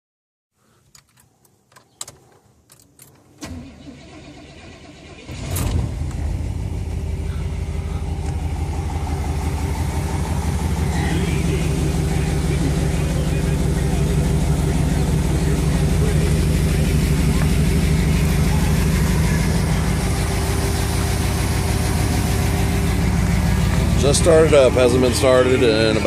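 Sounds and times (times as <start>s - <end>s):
truck engine cranking and idling: 2.7s - 26.0s.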